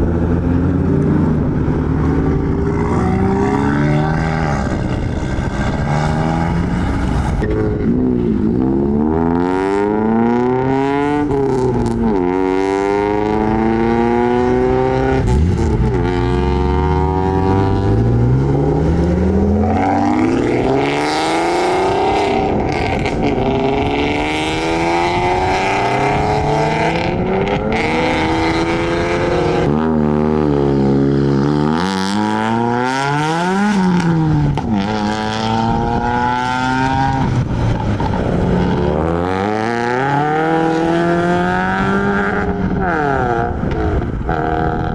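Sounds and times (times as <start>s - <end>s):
modified car engines accelerating: 0.0s - 44.9s.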